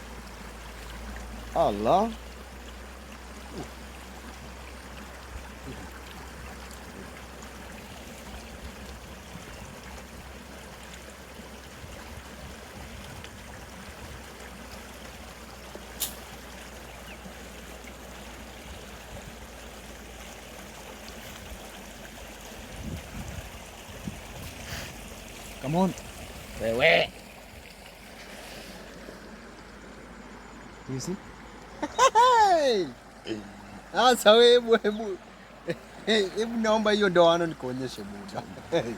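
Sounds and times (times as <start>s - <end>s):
river water flowing: 0.0s - 38.9s
sharp click: 16.0s - 16.2s.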